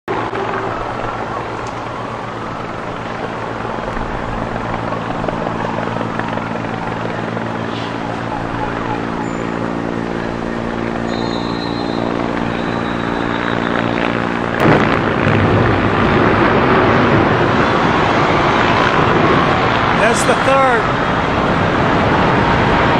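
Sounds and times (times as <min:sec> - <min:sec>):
helicopter engine and rotor drone: 0:00.1 - 0:22.9
rushing noise: 0:10.1 - 0:22.9.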